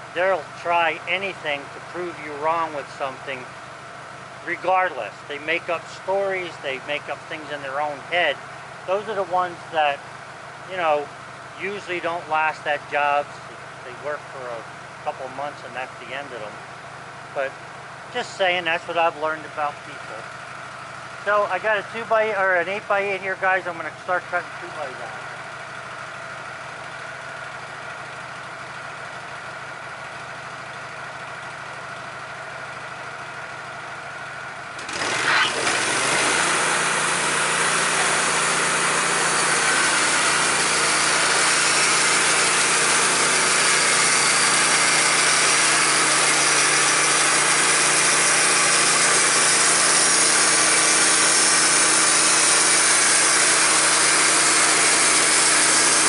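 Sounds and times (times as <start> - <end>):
sawmill engine running: 0.0 - 56.0
saw blade cutting timber: 34.8 - 56.0.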